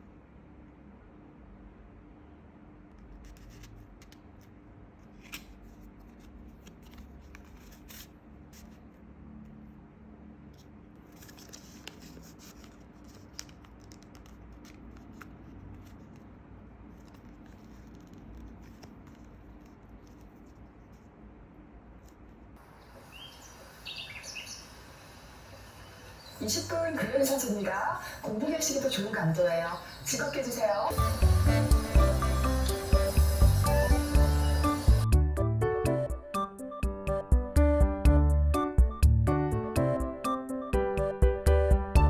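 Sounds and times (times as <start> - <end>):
packaging rustling and scraping: 3.2 - 8.9, 10.6 - 21.1.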